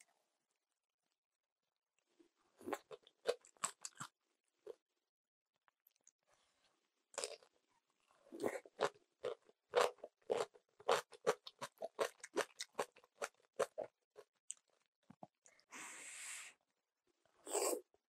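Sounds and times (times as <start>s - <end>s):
crunchy chewing: 2.6s - 4.1s, 8.4s - 14.9s.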